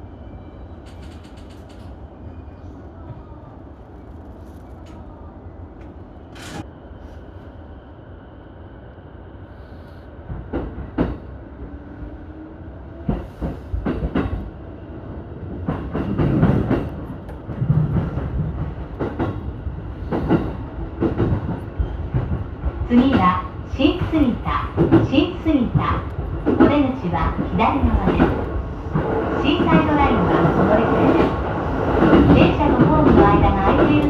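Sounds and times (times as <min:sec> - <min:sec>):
electric train humming: 0:17.9 - 0:34.0.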